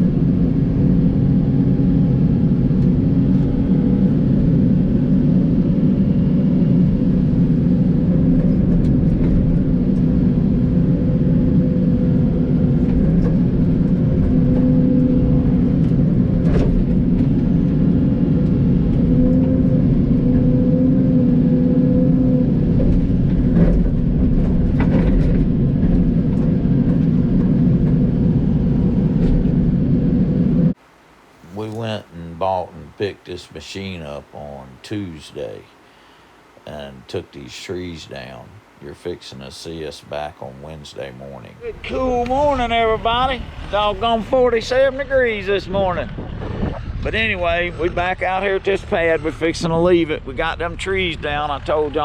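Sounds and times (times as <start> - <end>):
excavator diesel engine running: 36.7 - 44.3.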